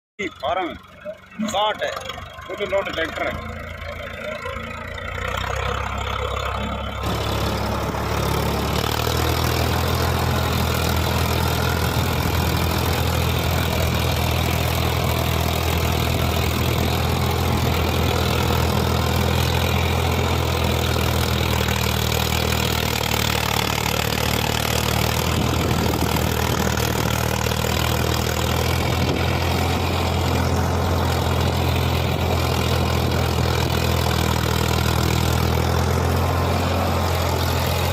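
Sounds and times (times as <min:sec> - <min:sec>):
tractor diesel engine running: 0:00.2 - 0:37.9.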